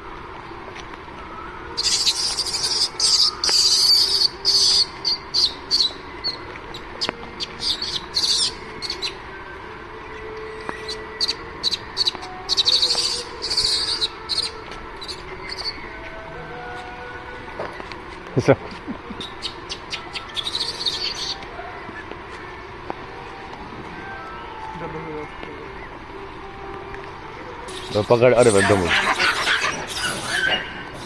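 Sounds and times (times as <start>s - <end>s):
steady background hiss: 0.0s - 31.0s
birds chirping: 1.8s - 16.3s, 17.6s - 31.0s.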